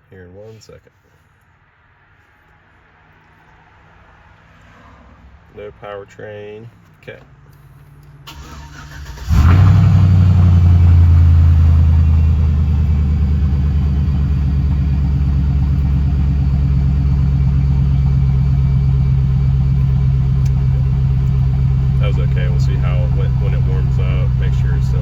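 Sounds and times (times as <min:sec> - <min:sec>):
truck engine idling: 0:08.3 - 0:25.0.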